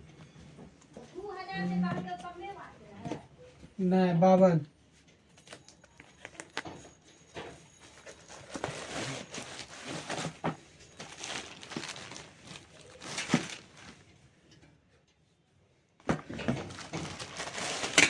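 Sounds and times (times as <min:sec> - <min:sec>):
packaging rustling: 0:07.8 - 0:14.1, 0:16.1 - 0:18.0.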